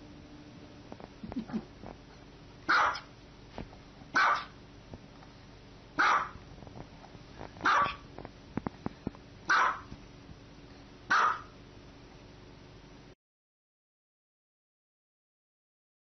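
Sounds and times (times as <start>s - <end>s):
small dog barking: 2.6s - 3.1s, 4.1s - 4.6s, 6.0s - 6.4s, 7.6s - 8.1s, 9.5s - 9.9s, 11.1s - 11.6s.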